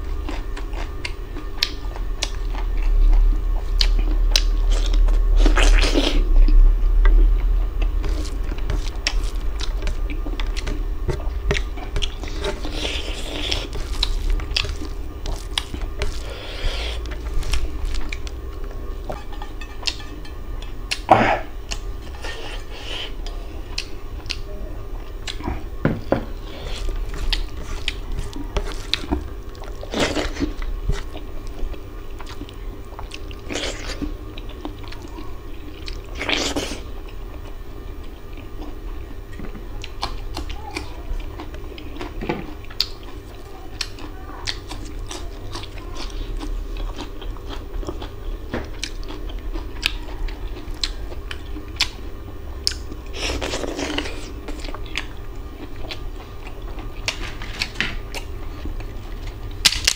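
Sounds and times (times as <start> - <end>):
wet chewing: 0.2 - 6.3, 7.0 - 24.5, 25.1 - 38.8, 39.8 - 59.9
loud crunches: 8.0 - 18.6.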